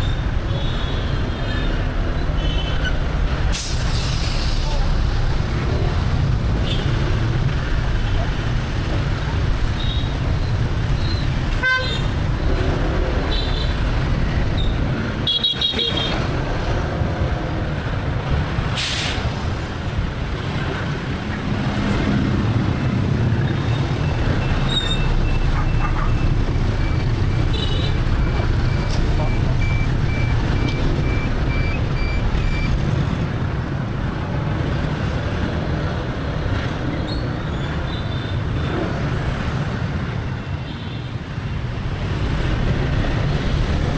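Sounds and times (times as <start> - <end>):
traffic rumble: 0.0 - 43.9
horns honking: 15.2 - 16.2
quick even beeps: 28.1 - 32.8.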